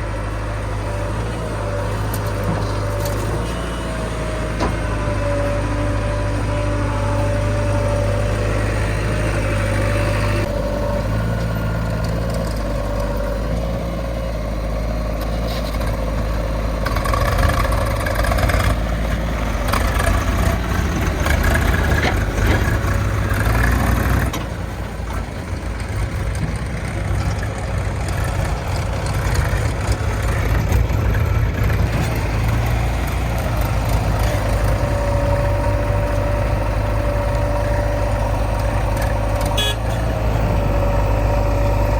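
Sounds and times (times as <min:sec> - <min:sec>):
diesel engines running: 0:00.0 - 0:41.9
rattles and clanks: 0:19.6 - 0:41.4.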